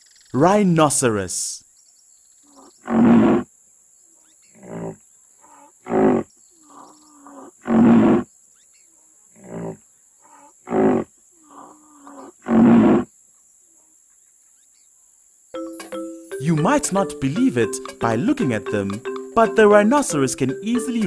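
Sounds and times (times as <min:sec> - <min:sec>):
rhinoceros grunts: 0:02.5 - 0:03.5, 0:04.5 - 0:08.3, 0:09.4 - 0:13.1
rhinoceros calling: 0:04.5 - 0:08.2, 0:09.4 - 0:13.1.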